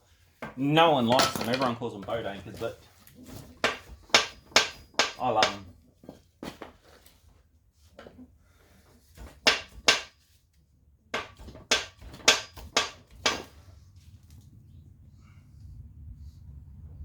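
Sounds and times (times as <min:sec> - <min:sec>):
tool knocking on engine parts: 0:03.6 - 0:05.7, 0:09.2 - 0:10.1, 0:11.2 - 0:13.6.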